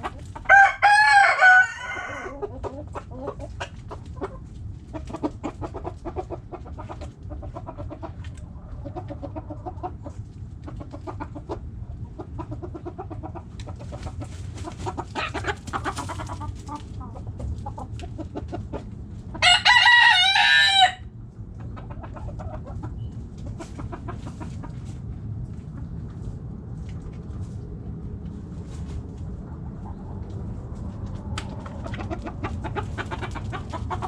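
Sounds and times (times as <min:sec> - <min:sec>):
hens clucking: 0:00.0 - 0:34.0
rooster crowing: 0:00.4 - 0:02.4, 0:19.4 - 0:21.1.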